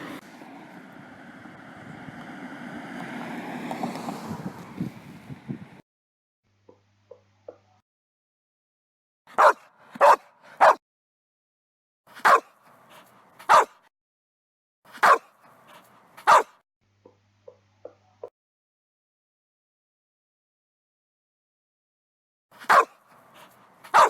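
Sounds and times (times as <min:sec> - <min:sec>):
dog barking: 0:09.3 - 0:10.8, 0:12.2 - 0:13.9, 0:14.9 - 0:16.6, 0:22.6 - 0:24.0.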